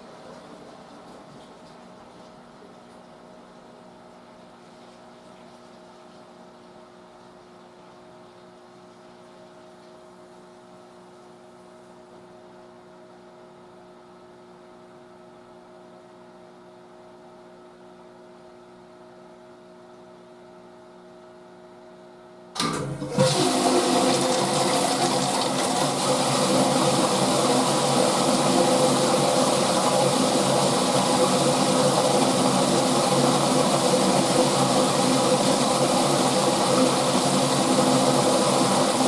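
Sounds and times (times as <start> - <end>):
washing machine humming: 0.0 - 39.0
water rushing into machine: 22.6 - 39.0.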